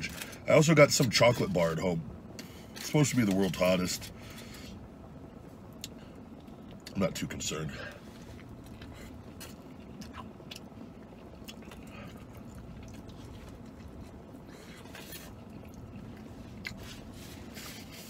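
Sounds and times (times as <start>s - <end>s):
low steady hum: 0.0s - 18.0s
man chewing food: 8.0s - 18.0s.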